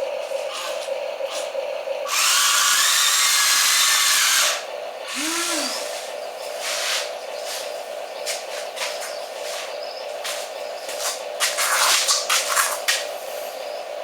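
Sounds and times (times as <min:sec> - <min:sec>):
steady low hum: 0:00.0 - 0:14.0
small electric motor whining: 0:00.5 - 0:06.1.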